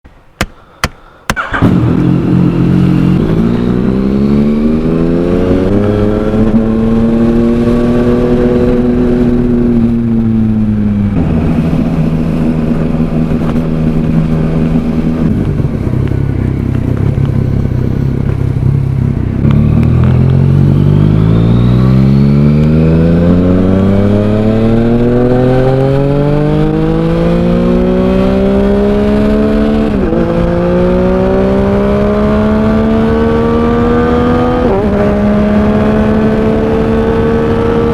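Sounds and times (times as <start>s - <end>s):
sharp clicks: 0.4s - 1.6s
motorcycle engine accelerating: 0.8s - 37.9s.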